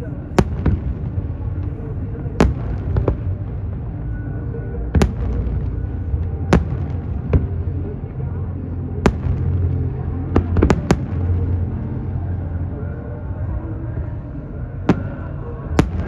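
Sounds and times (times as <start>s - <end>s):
low rumble: 0.0s - 16.0s
fireworks bangs: 0.4s - 4.1s, 4.9s - 7.8s, 9.0s - 11.7s, 14.9s - 16.0s.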